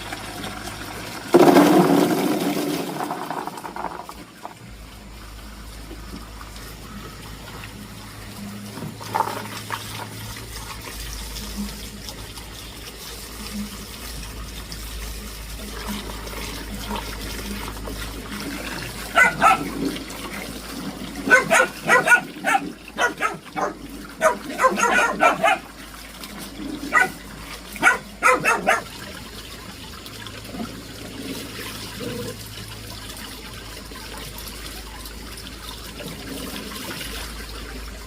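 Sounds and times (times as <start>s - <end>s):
running water: 0.0s - 38.0s
dog barking: 19.1s - 19.8s, 21.2s - 25.7s, 26.9s - 27.2s, 27.8s - 28.9s.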